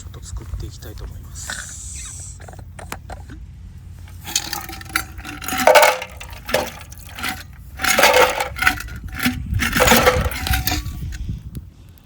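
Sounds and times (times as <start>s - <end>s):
cups and bottle clinking: 4.1s - 11.2s.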